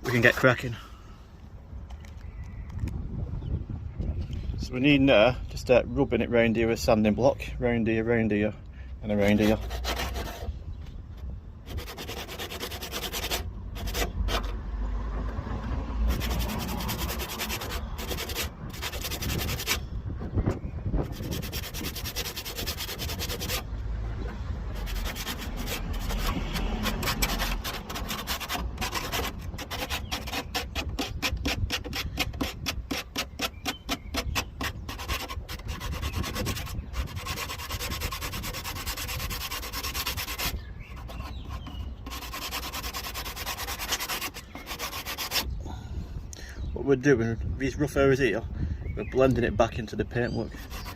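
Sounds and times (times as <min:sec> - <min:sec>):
sandpaper rubbing on car body: 0:09.2 - 0:10.6, 0:11.6 - 0:14.6, 0:16.1 - 0:19.8, 0:21.0 - 0:23.7, 0:24.7 - 0:45.6, 0:50.3 - 0:50.9.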